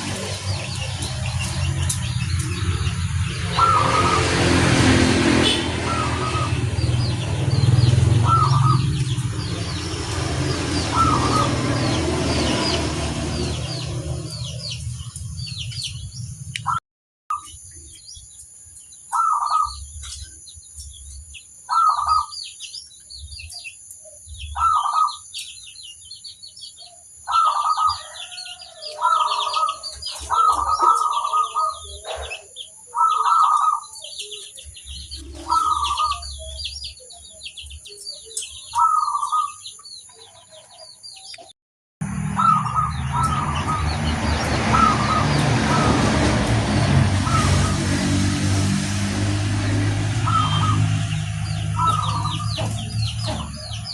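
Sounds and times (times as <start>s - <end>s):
small birds chirping: 0.0s - 48.3s, 48.9s - 53.9s
dove cooing: 3.5s - 4.3s, 8.2s - 8.8s, 10.9s - 12.0s, 19.1s - 19.8s, 21.7s - 22.3s, 24.6s - 25.2s, 27.3s - 34.5s, 35.2s - 36.6s, 38.7s - 39.6s, 42.4s - 43.8s, 44.7s - 45.9s, 50.2s - 50.9s.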